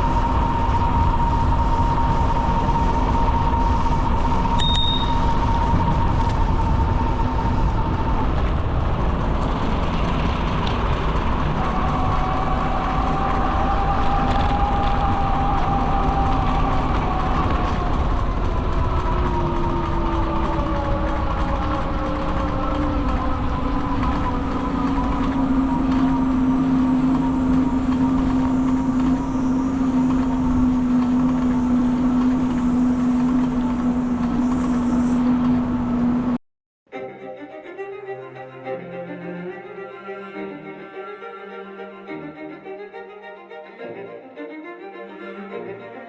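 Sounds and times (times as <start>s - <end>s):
loud droning rumble: 0.0s - 36.4s.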